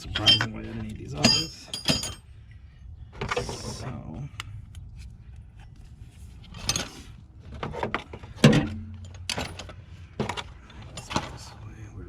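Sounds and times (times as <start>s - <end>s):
hand tools knocking and rattling: 1.2s - 2.2s.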